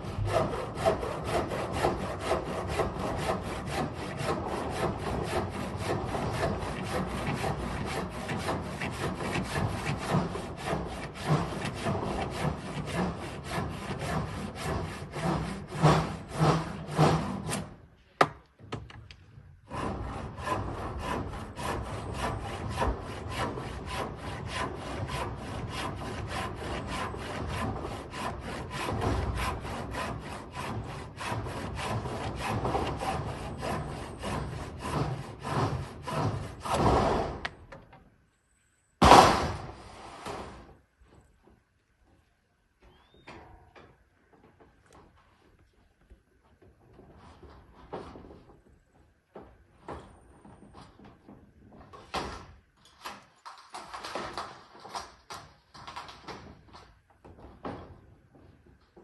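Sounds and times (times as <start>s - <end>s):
hand saw cutting wood: 0.0s - 17.8s, 19.7s - 37.6s.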